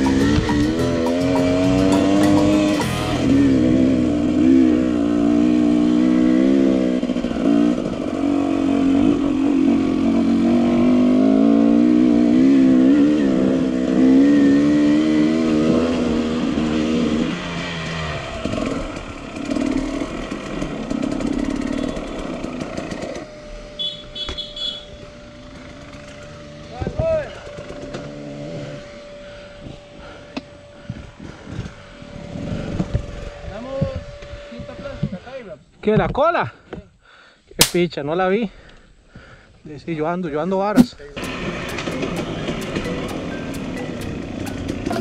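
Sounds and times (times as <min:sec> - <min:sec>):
motorcycle engine running: 0:00.0 - 0:35.2, 0:41.0 - 0:45.0.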